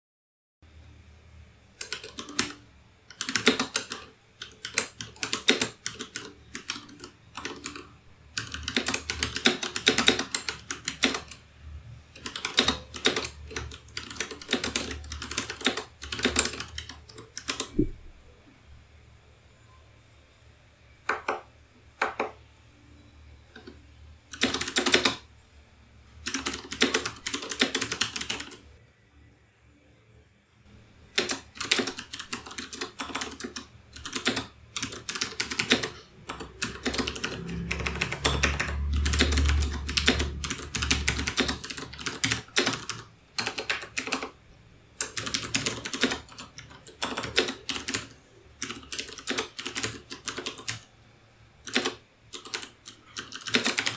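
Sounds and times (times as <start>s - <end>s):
typing on a keyboard: 1.8s - 11.4s, 12.2s - 17.9s, 23.5s - 25.2s, 26.3s - 28.6s, 31.1s - 44.4s, 45.0s - 50.9s, 51.6s - 53.9s.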